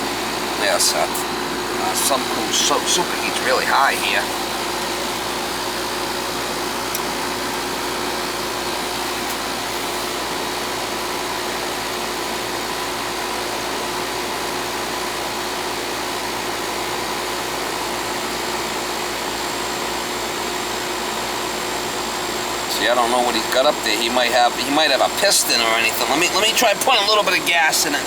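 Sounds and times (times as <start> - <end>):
air conditioner unit running: 0.0 - 28.0.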